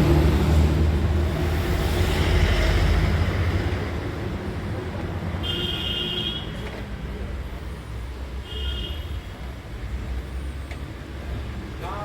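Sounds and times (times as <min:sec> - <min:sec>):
vehicle engine rumbling: 0:00.0 - 0:03.9.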